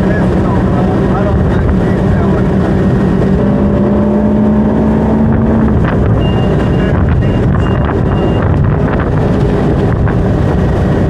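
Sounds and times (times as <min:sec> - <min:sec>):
boat engine running: 0:00.0 - 0:11.0
wind noise on microphone: 0:00.0 - 0:11.0
short high beeps: 0:06.2 - 0:08.5.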